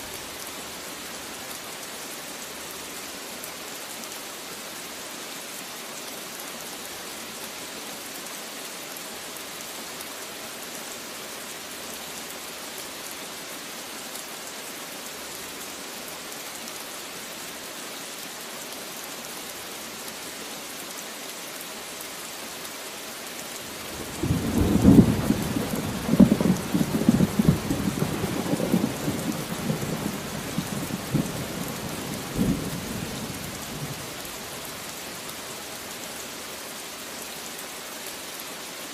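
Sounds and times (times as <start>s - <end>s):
steady rain falling: 0.0s - 38.9s
thunder rumbling: 24.0s - 31.5s.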